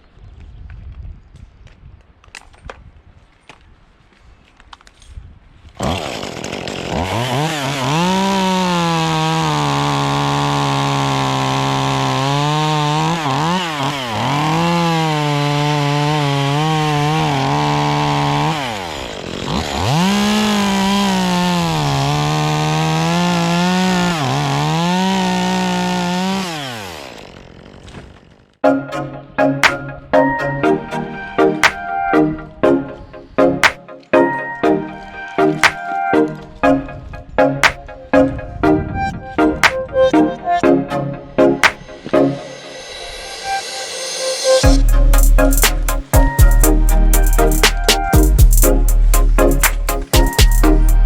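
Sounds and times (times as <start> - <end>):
chainsaw cutting wood: 5.8 - 28.6, 44.7 - 51.0.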